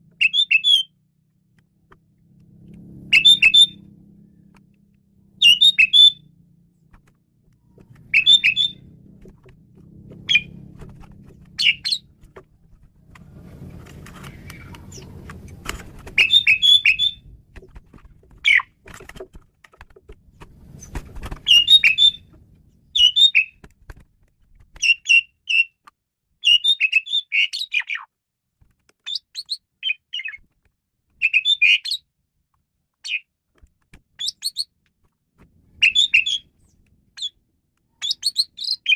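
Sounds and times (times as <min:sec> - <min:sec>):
bird singing chattering notes: 0:00.2 - 0:00.9, 0:03.1 - 0:03.8, 0:05.4 - 0:06.2, 0:08.0 - 0:08.9, 0:11.5 - 0:12.2, 0:16.2 - 0:17.3, 0:21.4 - 0:23.6, 0:37.2 - 0:38.9.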